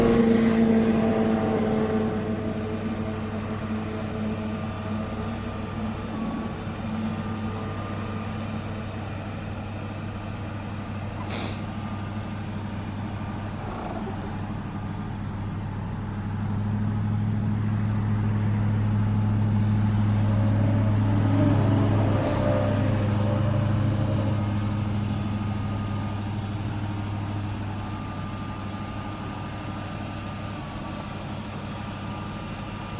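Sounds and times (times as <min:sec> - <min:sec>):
truck engine humming: 0:00.0 - 0:32.9
short hiss: 0:11.2 - 0:11.7.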